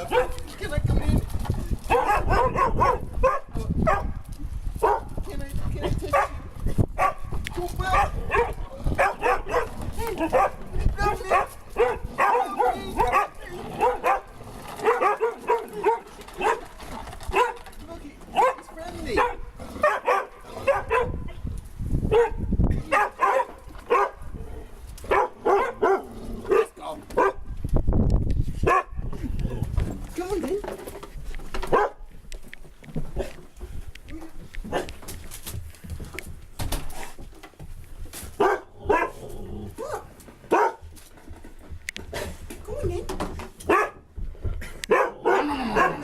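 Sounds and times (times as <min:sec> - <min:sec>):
dog barking: 0:00.0 - 0:00.4, 0:01.9 - 0:04.2, 0:04.8 - 0:05.1, 0:05.8 - 0:07.3, 0:07.9 - 0:16.7, 0:17.3 - 0:17.6, 0:18.3 - 0:18.6, 0:19.2 - 0:21.3, 0:22.1 - 0:24.2, 0:25.1 - 0:27.5, 0:28.6 - 0:29.0, 0:31.7 - 0:32.0, 0:38.4 - 0:39.2, 0:39.8 - 0:40.8, 0:43.7 - 0:44.1, 0:44.9 - 0:46.0.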